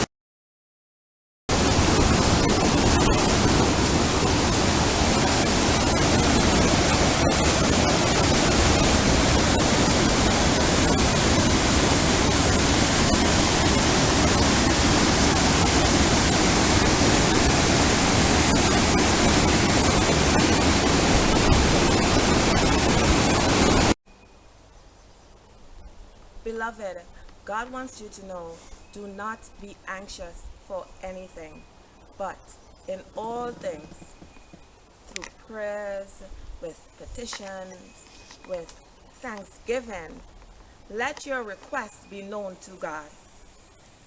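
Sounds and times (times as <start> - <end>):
rushing water: 1.5 - 24.0.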